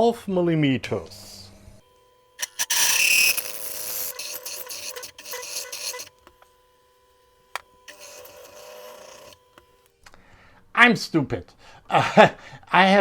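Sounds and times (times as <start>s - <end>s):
drill cutting metal: 1.8s - 9.9s
spindle whine: 1.8s - 9.9s.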